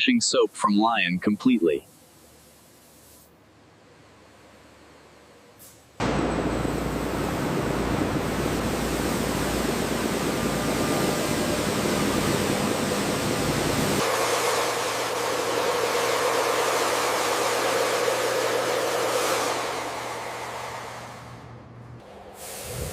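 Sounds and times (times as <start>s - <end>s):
loud rushing noise: 22.0s - 22.9s.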